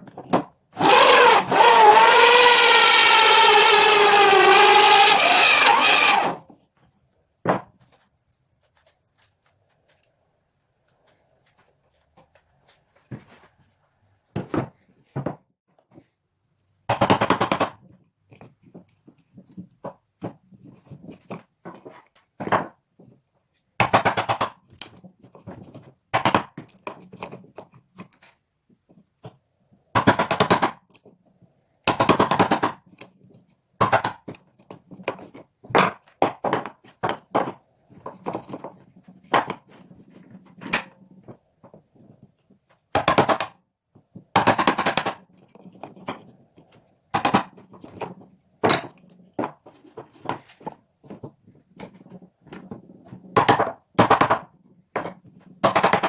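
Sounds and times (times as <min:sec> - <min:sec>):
scraping strokes on wood: 0:00.8 - 0:06.4.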